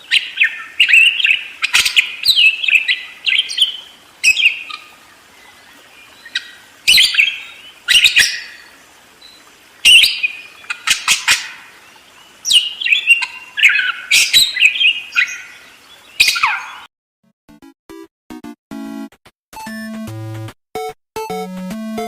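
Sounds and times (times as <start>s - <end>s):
parakeets chattering: 0.0s - 8.8s, 9.4s - 16.9s.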